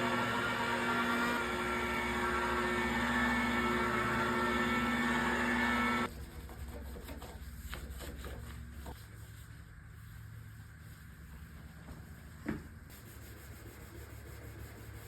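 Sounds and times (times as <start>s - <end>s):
power tool motor humming: 0.0s - 6.1s.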